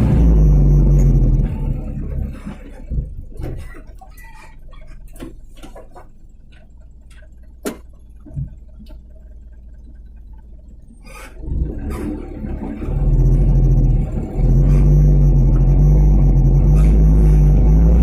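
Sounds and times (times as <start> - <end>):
truck engine idling: 0.0 - 18.0
sharp clicks and knocks: 4.9 - 9.1.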